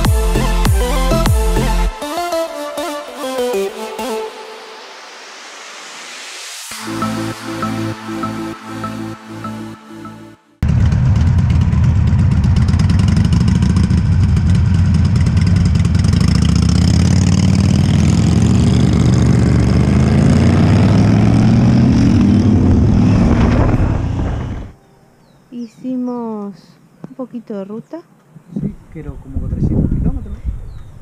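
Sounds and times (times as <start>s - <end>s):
motorcycle engines revving: 10.6s - 24.8s.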